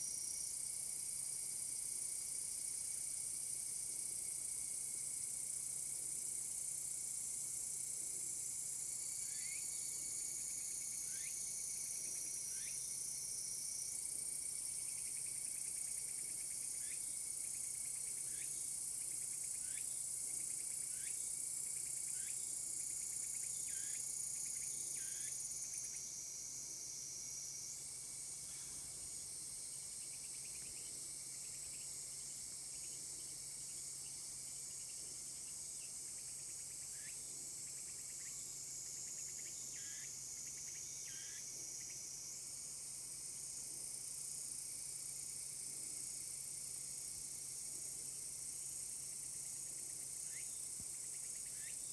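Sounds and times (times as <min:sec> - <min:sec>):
cicadas shrilling: 0:09.1 - 0:09.9, 0:10.6 - 0:11.5, 0:50.2 - 0:51.9.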